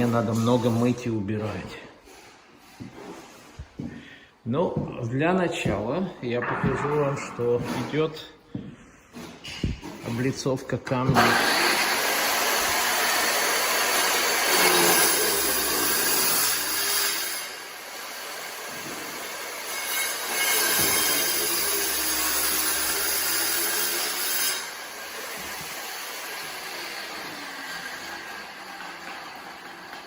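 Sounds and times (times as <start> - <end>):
power tool cutting stone: 11.2 - 30.0.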